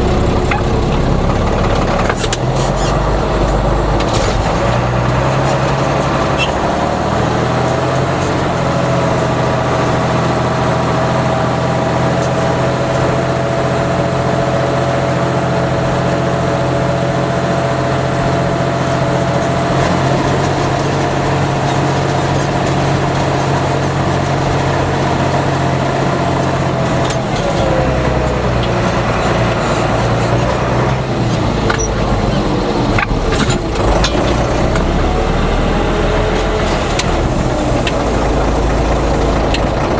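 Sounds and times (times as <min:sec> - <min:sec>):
steady whine: 0:00.0 - 0:14.3
tractor diesel engine running: 0:00.0 - 0:39.9.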